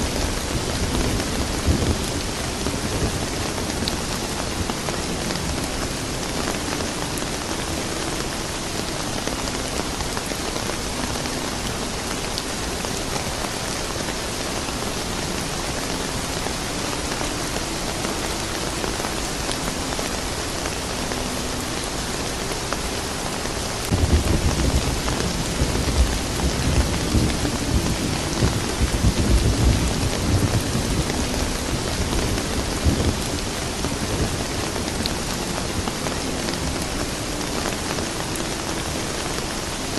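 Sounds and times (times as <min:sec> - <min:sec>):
steady rain falling: 0:00.0 - 0:39.9
low rumble of thunder: 0:23.9 - 0:35.1.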